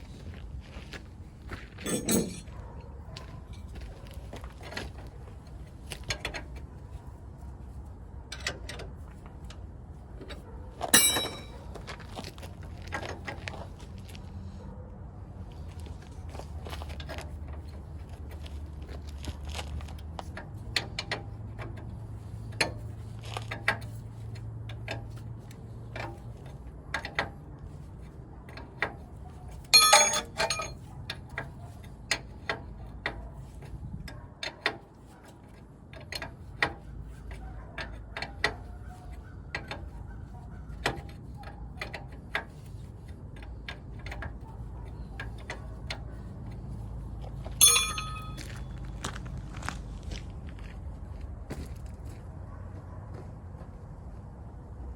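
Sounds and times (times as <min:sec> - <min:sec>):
hand tools clinking on metal: 0:01.8 - 0:02.5, 0:10.9 - 0:11.9, 0:29.7 - 0:30.8, 0:47.6 - 0:48.8
ringing metal clank: 0:01.8 - 0:02.5, 0:10.9 - 0:11.6, 0:29.8 - 0:30.8, 0:47.6 - 0:48.8
low steady hum: 0:47.6 - 0:48.8.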